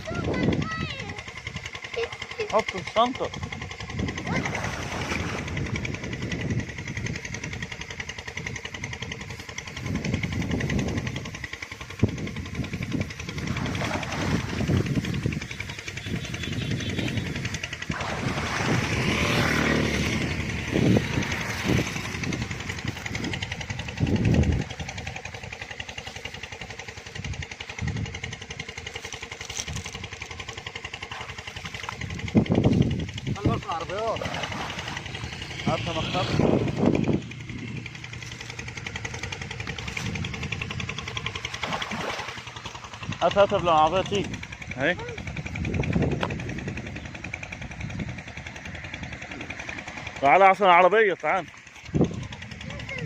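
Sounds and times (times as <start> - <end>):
engine running: 0.0 - 53.0
vehicle passing by: 4.3 - 5.7, 13.4 - 15.0, 16.4 - 23.4, 33.4 - 40.6, 41.6 - 42.5.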